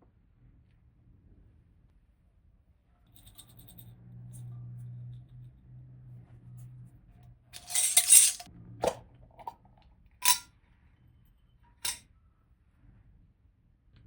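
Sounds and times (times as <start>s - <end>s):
scraping rustle: 7.6s - 8.4s
utensils clinking on dishes: 7.6s - 8.4s, 10.2s - 10.4s.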